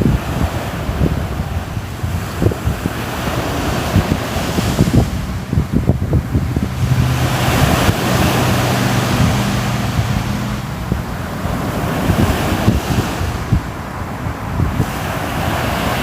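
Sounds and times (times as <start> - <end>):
waves breaking: 0.0 - 16.0
wind buffeting microphone: 0.0 - 16.0
low steady drone: 4.6 - 14.6.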